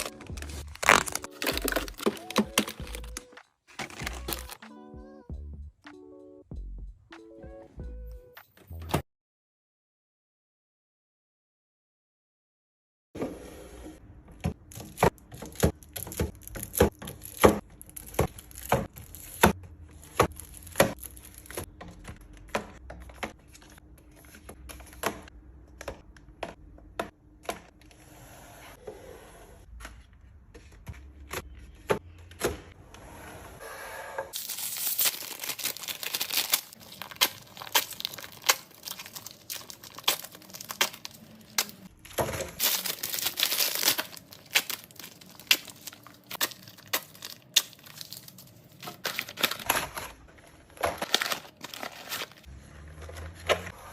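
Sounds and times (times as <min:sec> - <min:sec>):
items clicking and tapping: 0:00.0 - 0:04.6, 0:35.1 - 0:50.1
packaging crinkling and tearing: 0:00.0 - 0:04.6, 0:34.4 - 0:41.9, 0:42.5 - 0:52.5.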